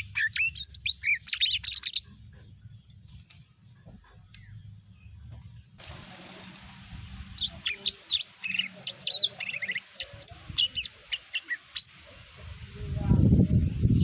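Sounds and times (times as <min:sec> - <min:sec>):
bird chirping and whistling: 0:00.0 - 0:02.0, 0:07.4 - 0:12.0.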